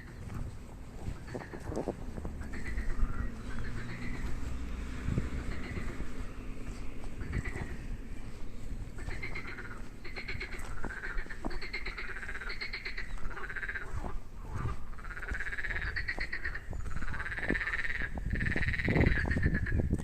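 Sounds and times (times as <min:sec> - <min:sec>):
frogs croaking: 0:00.0 - 0:20.0.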